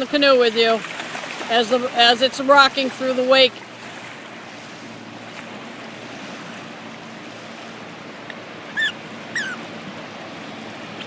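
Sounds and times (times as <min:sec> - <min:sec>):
distant motorboat drone: 0:00.0 - 0:11.0
river water washing: 0:00.0 - 0:11.0
wind: 0:00.0 - 0:11.0
high falling chirps: 0:08.7 - 0:09.6.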